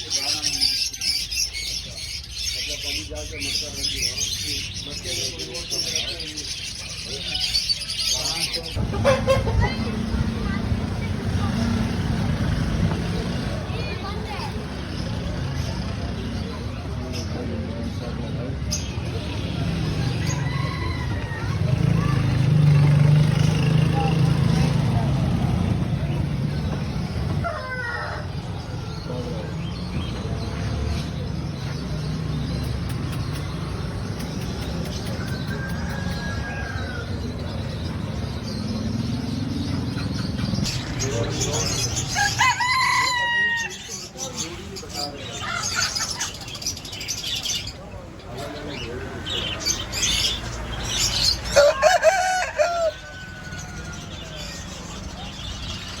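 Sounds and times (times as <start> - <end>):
birds chirping: 0.0 - 56.0
rooster crowing: 20.3 - 21.6, 35.2 - 37.4, 42.1 - 43.9, 51.5 - 54.5.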